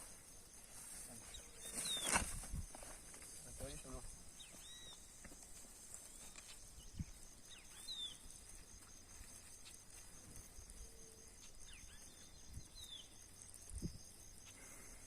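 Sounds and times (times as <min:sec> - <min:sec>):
insect trill: 0:00.0 - 0:15.0
bird chirps: 0:01.3 - 0:02.2, 0:04.4 - 0:05.1, 0:06.1 - 0:08.3, 0:10.8 - 0:13.2.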